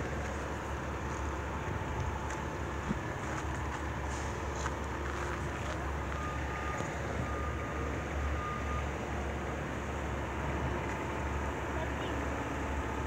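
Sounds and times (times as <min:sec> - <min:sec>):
freight train rumbling: 0:00.0 - 0:08.2.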